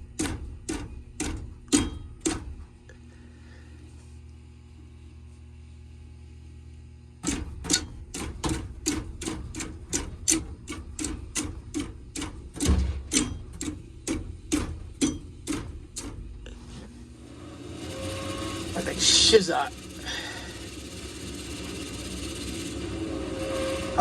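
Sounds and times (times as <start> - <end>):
motor low hum: 0.0 - 24.0
even clicking: 7.2 - 16.3.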